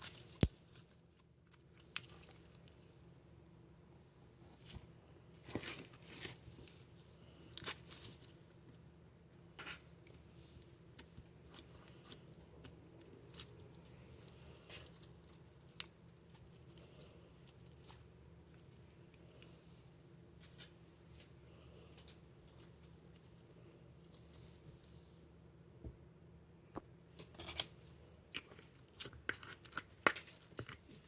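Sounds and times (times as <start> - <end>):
low steady hum: 0.0 - 31.0
rustling and crinkling: 4.4 - 25.3, 27.5 - 31.0.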